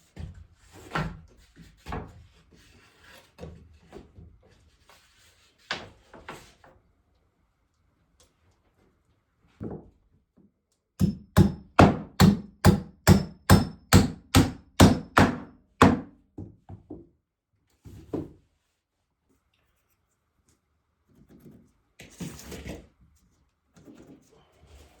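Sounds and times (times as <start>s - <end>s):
hammer striking wood: 11.0s - 16.2s.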